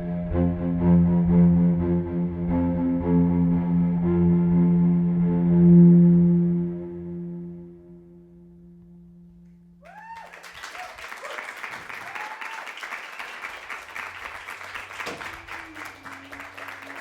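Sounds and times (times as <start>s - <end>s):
lingering musical tone: 0.0s - 9.8s
cheers and whoops: 9.8s - 13.4s, 15.2s - 17.0s
audience applause: 9.8s - 17.0s.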